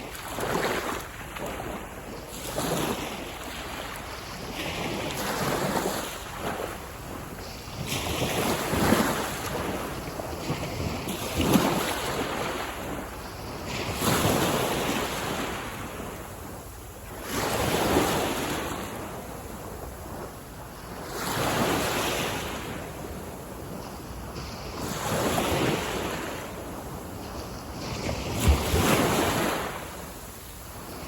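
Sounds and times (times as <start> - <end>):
waves breaking on beach: 0.0 - 31.0.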